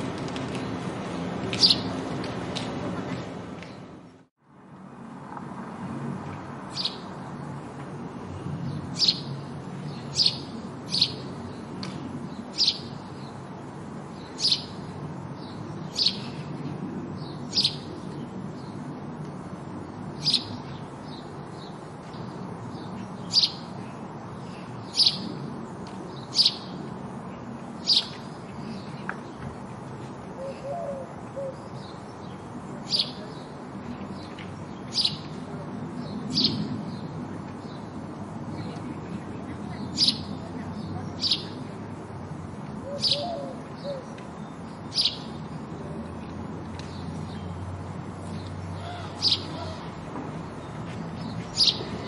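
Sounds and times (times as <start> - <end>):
sparrow chirping: 1.5 - 2.0, 6.7 - 7.2, 8.6 - 13.4, 14.2 - 16.5, 17.2 - 18.8, 20.2 - 25.5, 26.1 - 26.8, 27.4 - 29.0, 30.4 - 35.4, 36.0 - 38.8, 39.5 - 41.6, 42.8 - 45.6, 48.2 - 49.8, 50.6 - 52.0.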